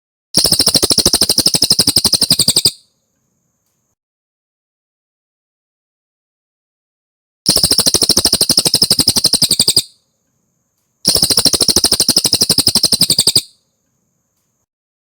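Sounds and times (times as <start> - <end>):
songbird trilling: 0.4 - 2.8, 7.5 - 10.0, 11.1 - 13.5.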